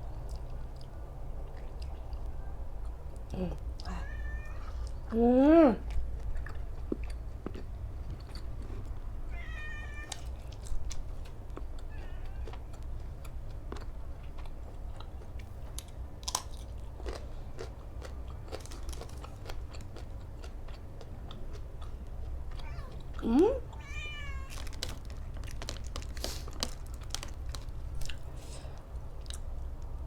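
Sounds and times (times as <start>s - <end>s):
chewing and crunching food: 0.0s - 30.0s
cat meowing: 3.9s - 4.9s, 9.3s - 10.4s, 11.9s - 12.8s, 22.5s - 24.7s.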